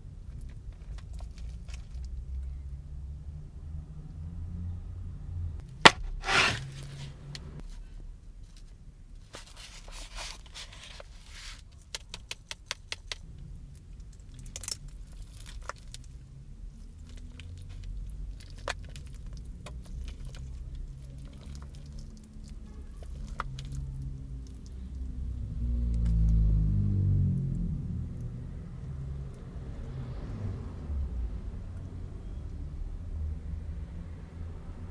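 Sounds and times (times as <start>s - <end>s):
food containers and utensils handled: 5.9s - 7.1s, 9.3s - 12.5s
crinkling rustle: 8.4s - 11.7s.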